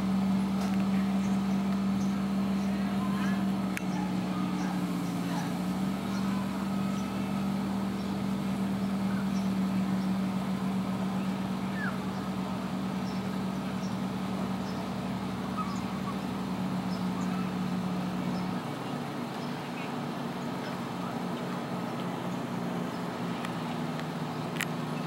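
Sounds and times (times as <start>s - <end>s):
motor humming: 0.0s - 25.0s
faint bird chirps: 15.6s - 16.2s.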